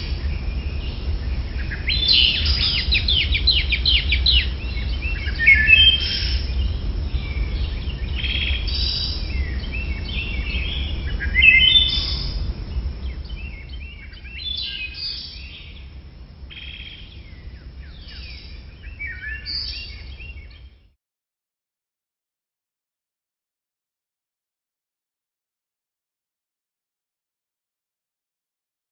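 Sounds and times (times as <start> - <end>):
low steady rumble: 0.0 - 20.8.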